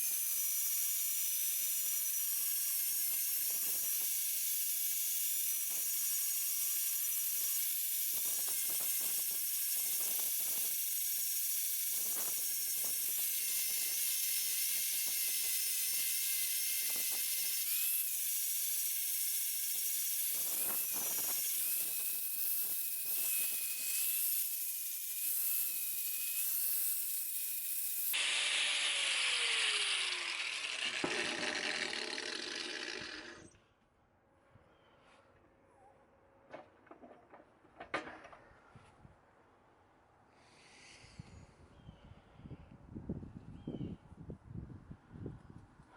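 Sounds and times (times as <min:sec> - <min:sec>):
power grinder whining on steel: 0:00.0 - 0:33.6.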